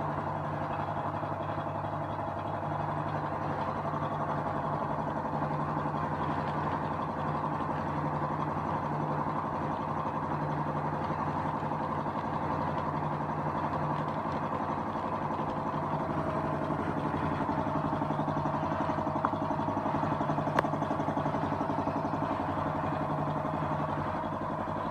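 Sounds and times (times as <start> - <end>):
engine running steadily: 0.0 - 24.9.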